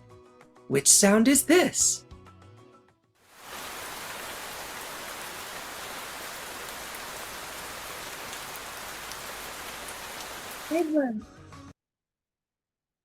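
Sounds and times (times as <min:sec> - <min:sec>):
rain hissing: 0:03.3 - 0:11.0
raindrop ticks: 0:03.5 - 0:10.8.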